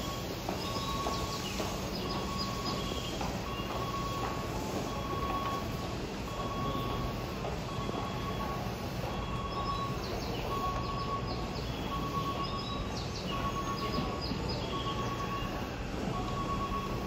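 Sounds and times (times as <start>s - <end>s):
train rumbling slowly: 0.0s - 17.0s
electronic beep: 3.5s - 5.7s, 6.3s - 7.1s, 7.7s - 17.0s.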